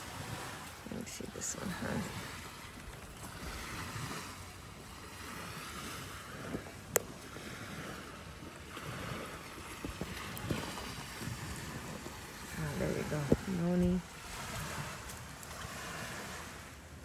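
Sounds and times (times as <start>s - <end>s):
wind noise on microphone: 0.0s - 17.0s.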